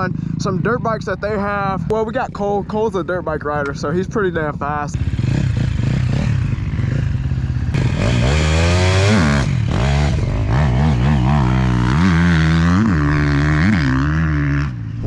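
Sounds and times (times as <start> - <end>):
dirt bike engine revving: 5.0 - 15.0.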